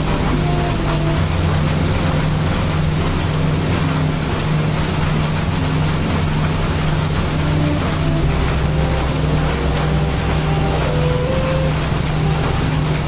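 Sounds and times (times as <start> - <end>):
deep low rumble: 0.0 - 13.0
heavy rain hissing: 0.0 - 13.0.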